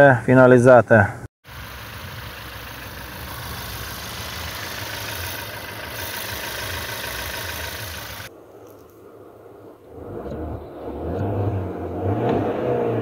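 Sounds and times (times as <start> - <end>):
car engine humming: 1.4 - 8.9
even hiss: 1.5 - 9.1.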